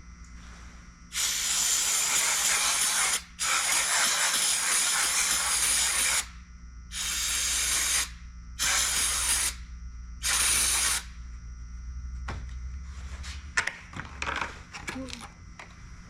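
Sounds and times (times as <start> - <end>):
steady low hum: 0.0 - 16.0
hissing spray bursts: 1.1 - 6.3, 6.9 - 9.6, 10.2 - 11.1.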